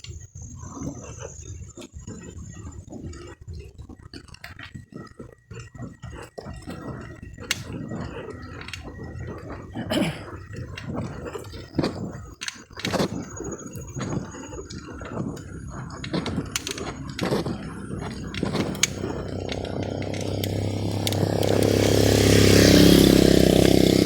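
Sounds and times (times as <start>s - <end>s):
twigs snapping: 15.9s - 24.0s
footsteps crunching through dry leaves: 17.3s - 24.0s.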